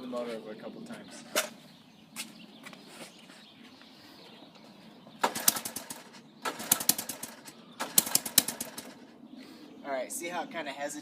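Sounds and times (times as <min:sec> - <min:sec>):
engine cranked with pull starter: 0:05.2 - 0:09.0.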